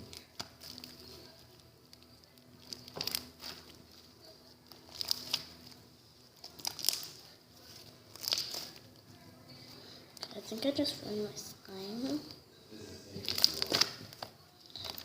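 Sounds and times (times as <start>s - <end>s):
slime crackling and crinkling: 0.0s - 9.1s, 13.2s - 15.0s.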